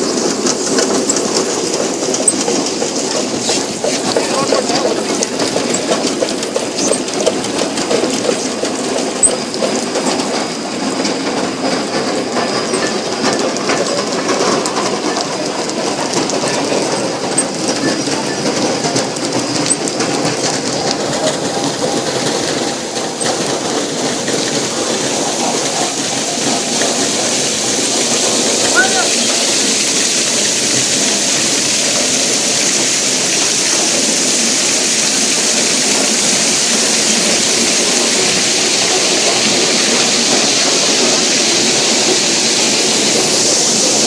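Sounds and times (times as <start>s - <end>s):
machine mechanical rattle: 0.0s - 32.1s.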